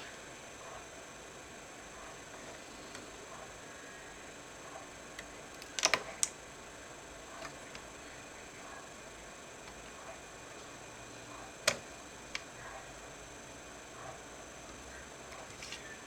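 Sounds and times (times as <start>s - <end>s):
small sharp clicks and taps: 5.2s - 6.4s, 11.6s - 12.5s.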